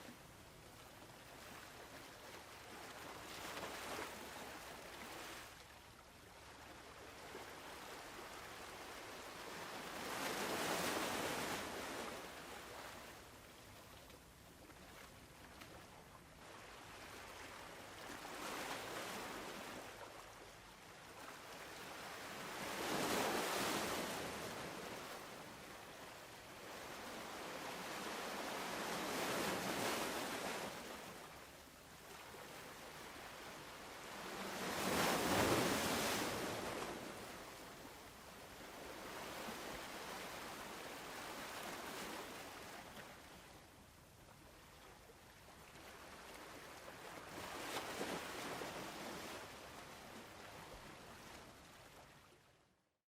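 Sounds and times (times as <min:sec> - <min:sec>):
ocean waves rolling in: 0:00.0 - 0:52.5.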